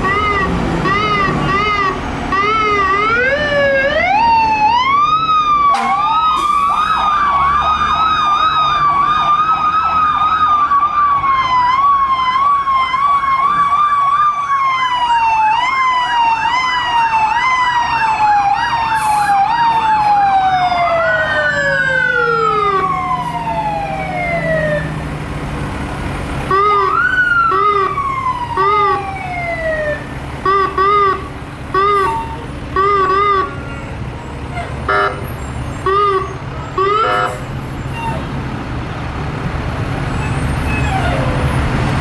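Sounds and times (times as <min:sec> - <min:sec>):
siren fast yelp: 0:00.0 - 0:05.0, 0:05.6 - 0:24.9, 0:26.5 - 0:33.8
siren slow wail: 0:00.0 - 0:25.1, 0:26.5 - 0:34.1, 0:35.8 - 0:38.3.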